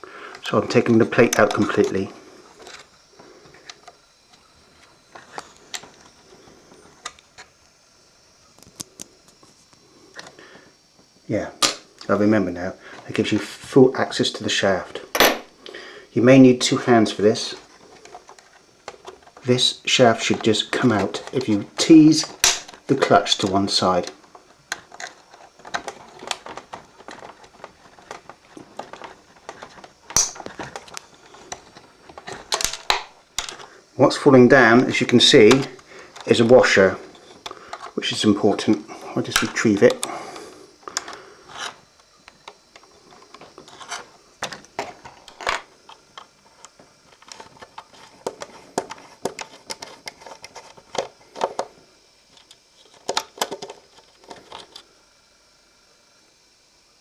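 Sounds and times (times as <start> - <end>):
small metal parts clicking: 22.3 - 22.8, 30.1 - 30.6, 32.5 - 33.6.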